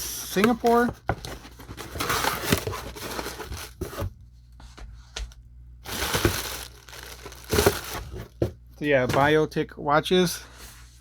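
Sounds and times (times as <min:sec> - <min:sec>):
packaging crinkling and tearing: 0:00.4 - 0:04.0, 0:05.8 - 0:08.4.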